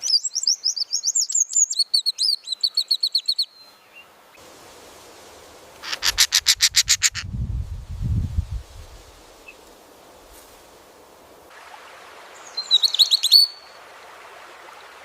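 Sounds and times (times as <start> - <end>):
songbird whistling notes: 12.4 - 13.7.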